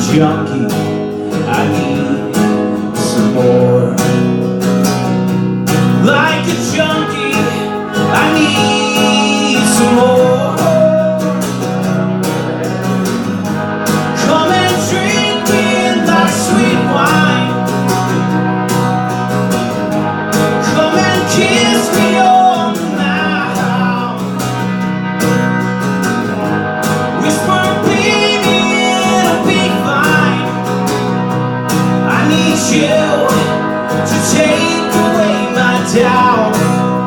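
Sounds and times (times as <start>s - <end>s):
gliding melodic lead line: 0.0s - 37.0s
guitar chords: 0.0s - 37.0s.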